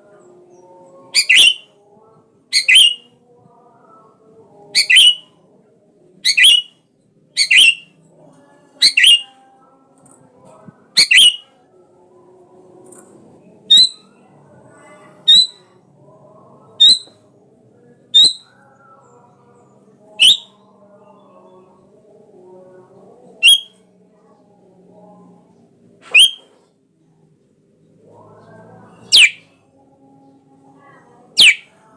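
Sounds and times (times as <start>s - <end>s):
bulbul calling: 1.2s - 1.6s, 2.5s - 3.1s, 4.8s - 5.2s, 6.2s - 6.7s, 7.4s - 7.8s, 8.8s - 9.3s, 11.0s - 11.4s, 18.2s - 18.5s, 20.2s - 20.5s, 23.4s - 23.7s, 26.1s - 26.5s, 29.1s - 29.4s, 31.4s - 31.7s.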